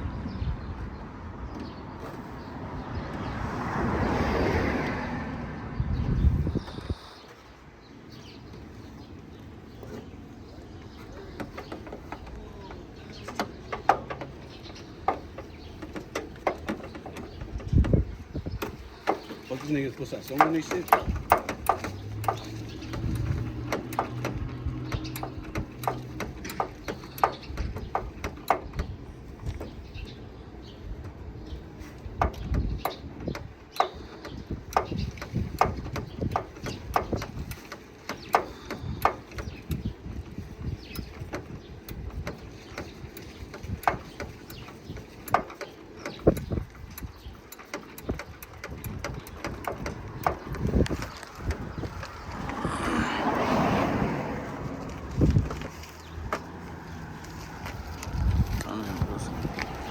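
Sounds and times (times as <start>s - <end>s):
sharp metallic clicks and clinks: 18.6s - 29.7s, 32.2s - 52.6s.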